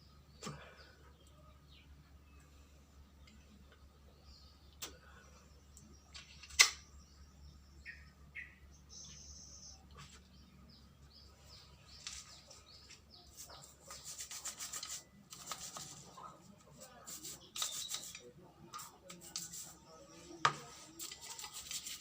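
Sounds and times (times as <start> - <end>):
faint bird chirps: 0.0 - 22.0.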